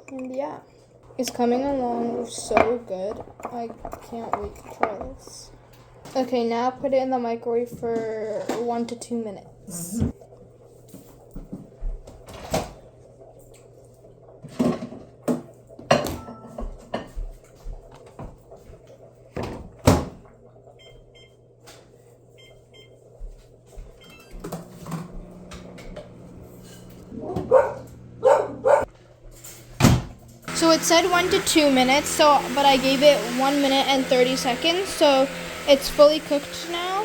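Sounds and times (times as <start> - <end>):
microwave keypad beeps: 20.8 - 21.4, 22.4 - 23.0, 24.0 - 24.5.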